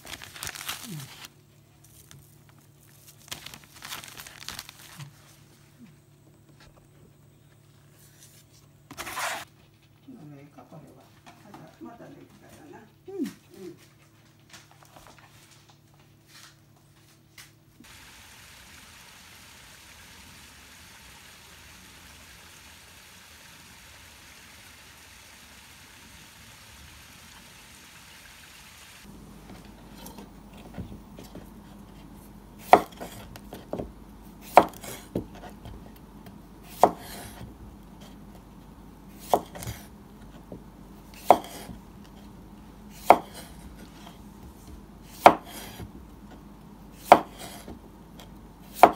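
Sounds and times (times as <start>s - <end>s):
steady hiss: 17.8s - 30.4s
knife chopping on cutting board: 32.6s - 35.8s, 36.7s - 37.4s, 39.2s - 41.8s, 43.0s - 44.1s, 44.7s - 46.4s, 47.0s - 47.8s.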